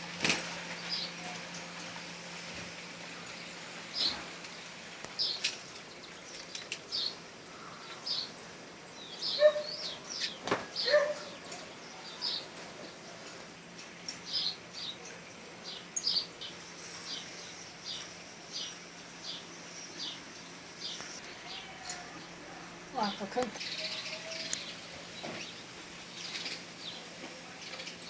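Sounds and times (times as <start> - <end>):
birds chirping: 0.0 - 28.0
lower bird calls: 3.3 - 4.4, 9.2 - 12.9, 20.0 - 28.0
sharp high ticks: 24.4 - 25.1.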